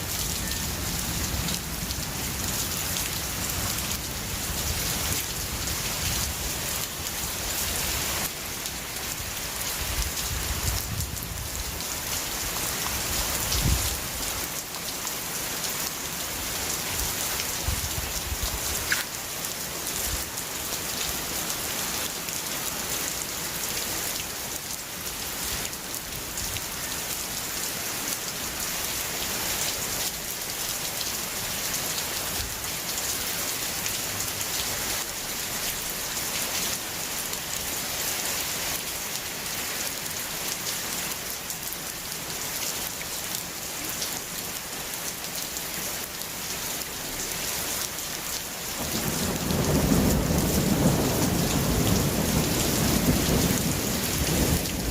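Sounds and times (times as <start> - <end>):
heavy rain pattering: 0.0 - 27.5, 41.4 - 54.9.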